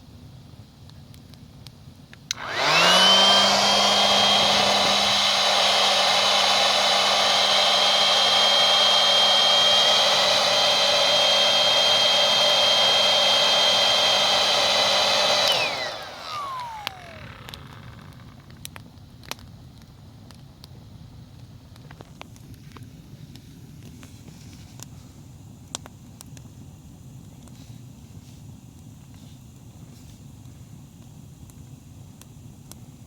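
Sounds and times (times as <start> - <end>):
electric air pump humming: 2.3 - 18.6.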